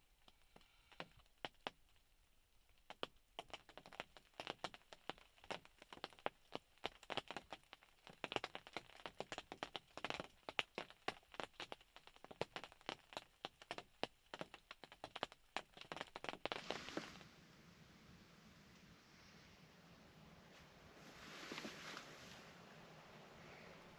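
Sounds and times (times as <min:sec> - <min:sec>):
rain dripping on a roof: 0:00.0 - 0:17.2.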